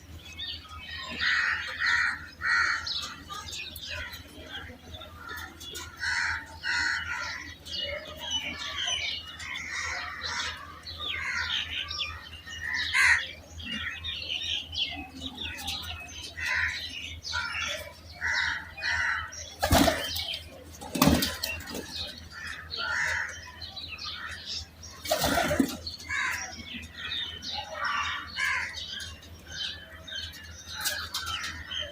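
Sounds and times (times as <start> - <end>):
young pigeons squeaking: 0.0 - 31.9
wings flapping: 19.6 - 22.0, 25.0 - 25.9.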